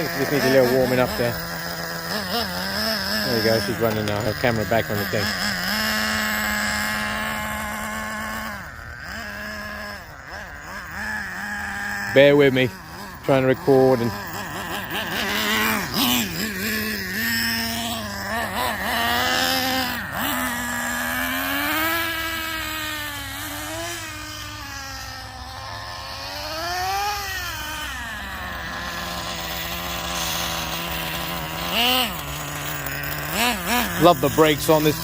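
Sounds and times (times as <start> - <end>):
model nitro engine revving: 0.0 - 35.0.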